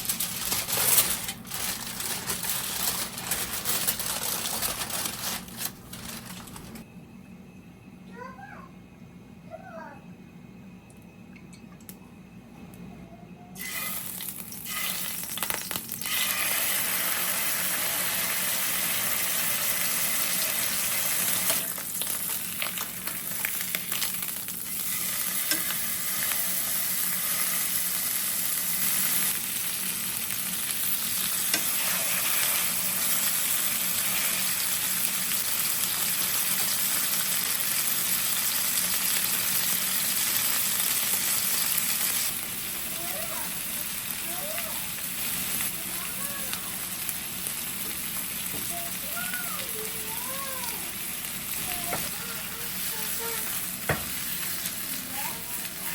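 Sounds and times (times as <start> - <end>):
food sizzling in a pan: 13.6 - 55.9.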